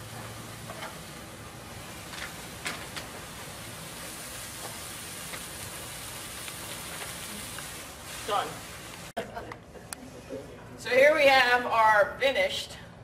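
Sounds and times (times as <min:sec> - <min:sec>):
vegetables sizzling in a wok: 0:00.0 - 0:09.3.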